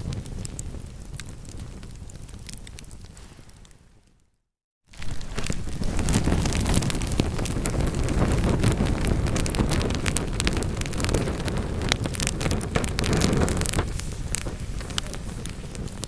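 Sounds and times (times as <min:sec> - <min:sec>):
logs crackling and popping: 0:00.0 - 0:04.2, 0:04.9 - 0:16.0
low rumble of flames: 0:00.0 - 0:04.3, 0:04.9 - 0:16.0.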